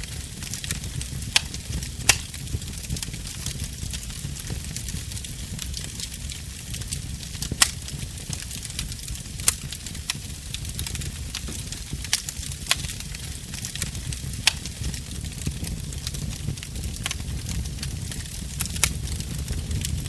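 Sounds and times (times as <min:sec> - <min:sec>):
fire crackling in fireplace: 0:00.0 - 0:20.0
sharp popping of fire: 0:00.0 - 0:20.0.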